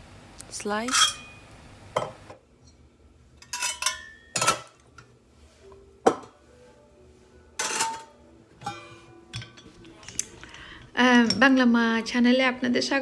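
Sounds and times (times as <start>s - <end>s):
metal blades clinking: 0.9s - 1.4s, 7.6s - 8.1s.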